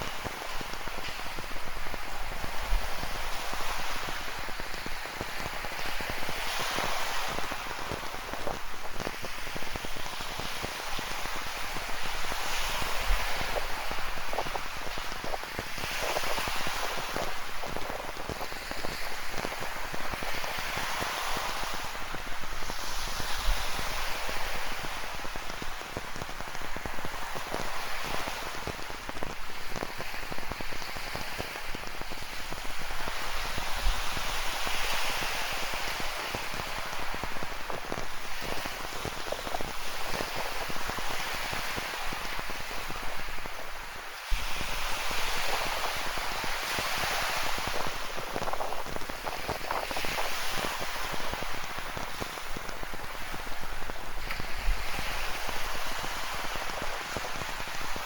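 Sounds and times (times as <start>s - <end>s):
ocean surf: 0.0s - 58.0s
rain falling: 12.9s - 20.7s.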